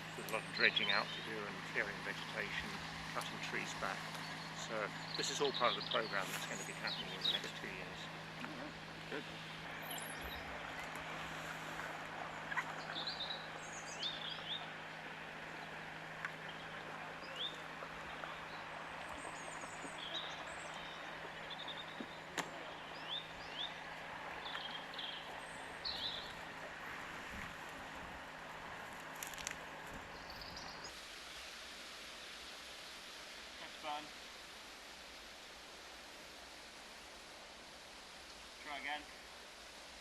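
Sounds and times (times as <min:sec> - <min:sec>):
steady low hum: 0:00.0 - 0:30.9
wild birds chirping: 0:00.0 - 0:31.0.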